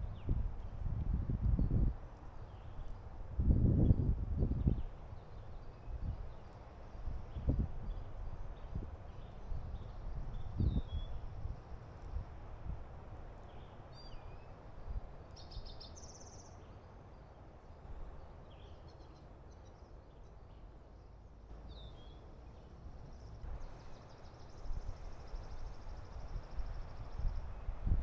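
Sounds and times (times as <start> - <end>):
small birds chirping: 15.3 - 17.4.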